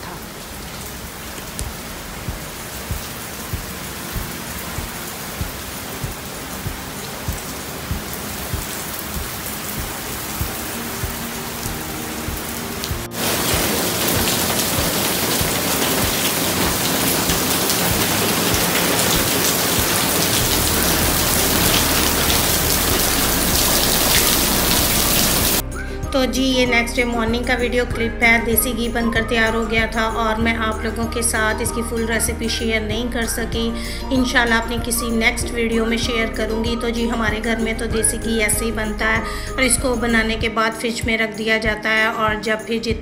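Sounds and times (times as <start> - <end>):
rain splashing on tiled floor: 0.0 - 25.6
heavy rain hissing: 0.0 - 26.1, 33.2 - 35.2.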